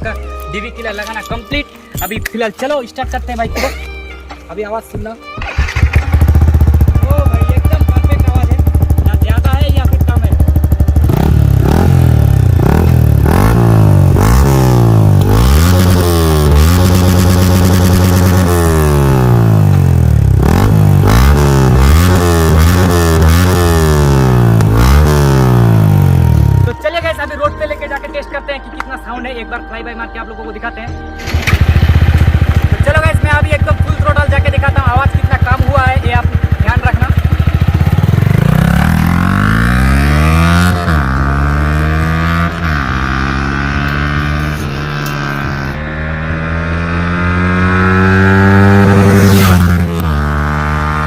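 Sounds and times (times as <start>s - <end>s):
quick throttle blips: 5.4s - 7.6s, 31.2s - 32.8s
motorcycle engine revving: 5.4s - 26.8s, 31.2s - 51.0s.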